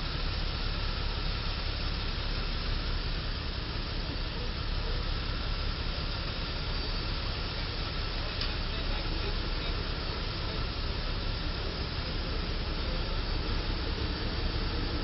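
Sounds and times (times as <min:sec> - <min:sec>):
road traffic noise: 0:00.0 - 0:15.0
faint click: 0:08.4 - 0:08.6.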